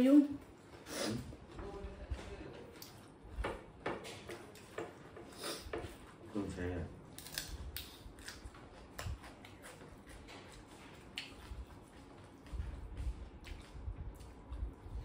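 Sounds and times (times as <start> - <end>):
chewing: 7.2 - 15.0.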